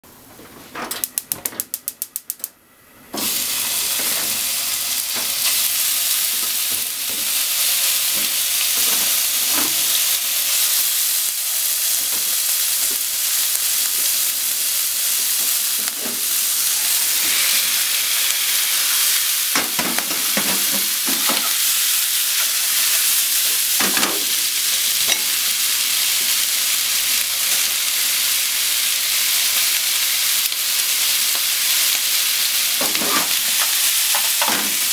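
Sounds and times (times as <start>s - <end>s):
food sizzling in a frying pan: 3.1s - 34.9s
utensil scraping the pan: 32.9s - 33.4s.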